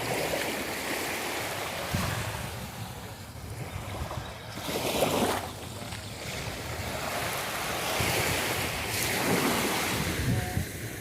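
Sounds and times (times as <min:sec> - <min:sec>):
surf washing onto beach: 0:00.0 - 0:11.0
wind rumbling on microphone: 0:00.0 - 0:11.0.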